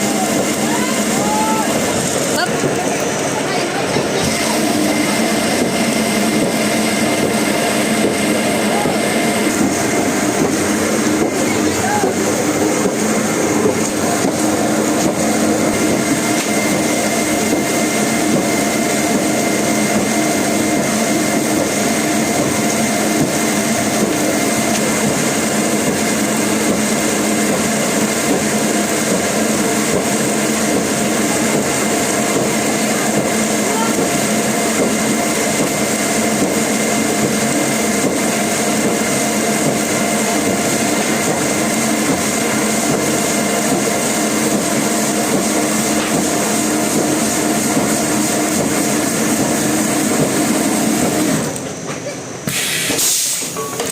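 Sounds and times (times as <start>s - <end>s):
woodworking machine motor whine: 0.0s - 53.0s.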